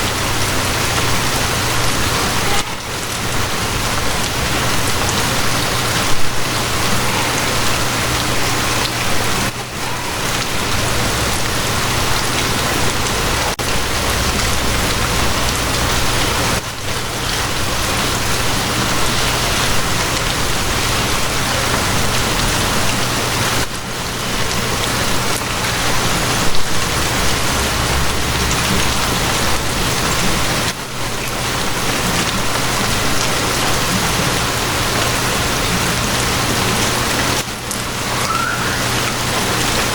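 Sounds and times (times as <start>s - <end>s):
steady rain falling: 0.0s - 39.9s
low steady hum: 12.1s - 20.8s.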